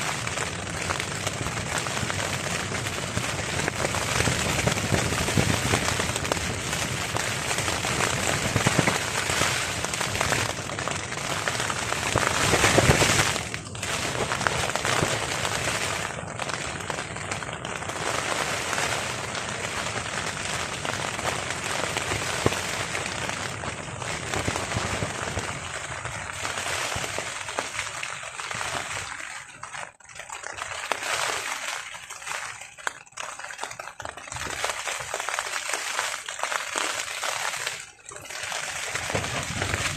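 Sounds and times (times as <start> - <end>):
rain on a tarp: 0.0 - 39.9
strong wind: 39.1 - 39.9.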